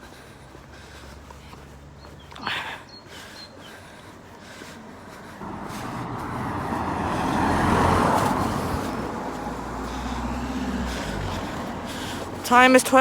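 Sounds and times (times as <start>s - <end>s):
low engine hum: 0.0s - 12.9s
vehicle driving past: 4.9s - 12.4s.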